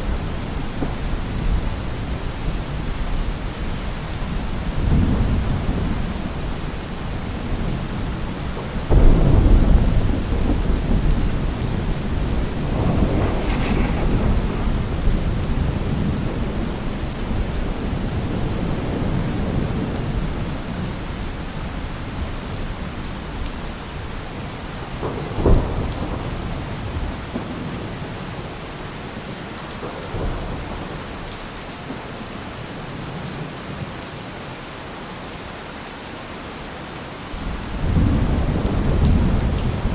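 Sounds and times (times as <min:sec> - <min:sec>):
thunder clap and rumbles: 0:00.0 - 0:21.2, 0:22.1 - 0:28.5, 0:29.3 - 0:31.4, 0:37.4 - 0:39.9
heavy rain: 0:00.0 - 0:39.9
sharp thunder crack: 0:08.9 - 0:19.2.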